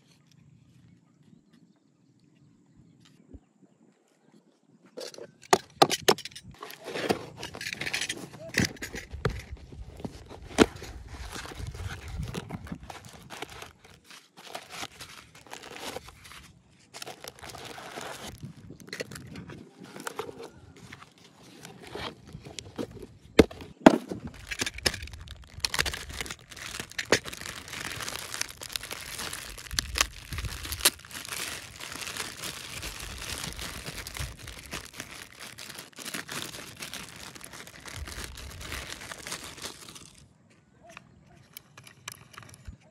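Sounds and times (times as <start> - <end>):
packaging crinkling and tearing: 6.5 - 23.7, 24.3 - 40.2.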